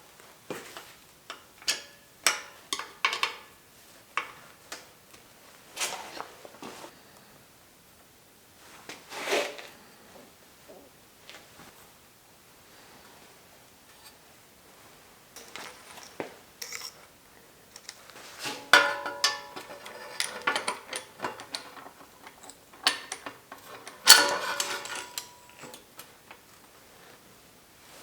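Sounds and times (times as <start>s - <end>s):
metal bike parts and tools clinking: 1.3s - 3.5s, 15.4s - 17.0s, 17.7s - 26.4s
ringing metal clanks: 18.6s - 21.8s, 22.7s - 25.8s.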